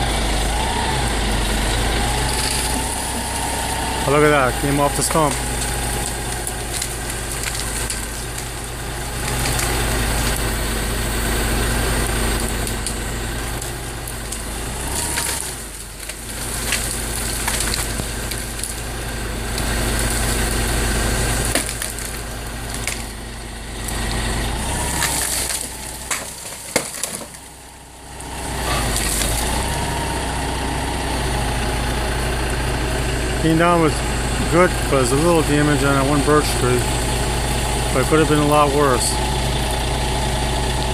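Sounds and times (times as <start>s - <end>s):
truck engine revving: 0.0s - 40.9s
wood cracking and snapping: 0.2s - 30.0s.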